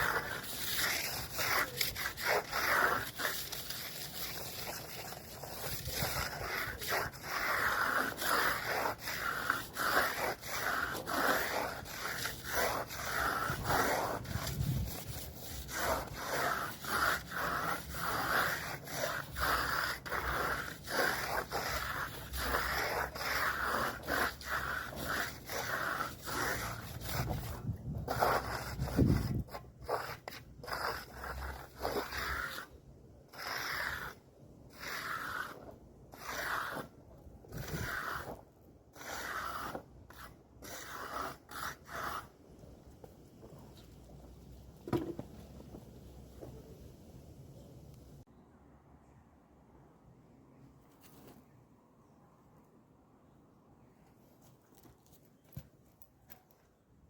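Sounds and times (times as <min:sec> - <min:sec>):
hand tool scraping a wall: 0:00.0 - 0:42.4.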